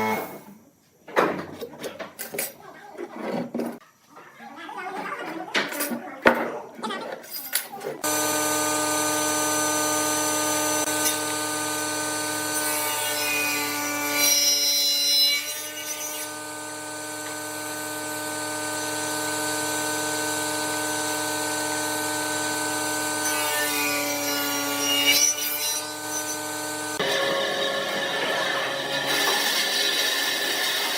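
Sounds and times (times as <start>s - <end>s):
wood lathe motor whine: 8.0s - 30.9s.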